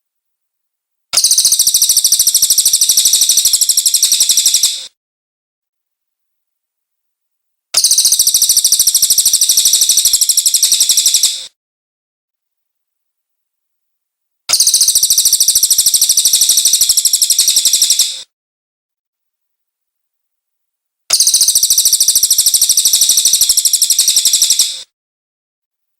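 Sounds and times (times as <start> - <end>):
bird song high-pitched repeated notes: 1.2 - 5.0, 7.8 - 11.6, 14.5 - 18.3, 21.1 - 24.9.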